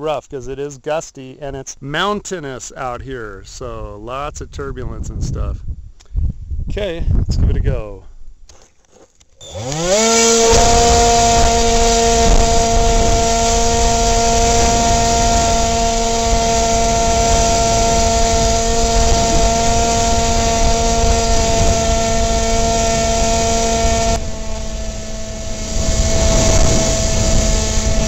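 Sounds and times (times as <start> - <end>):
wind rumble on microphone: 3.4 - 8.5, 9.8 - 28.0
model airplane motor whining: 9.2 - 28.0.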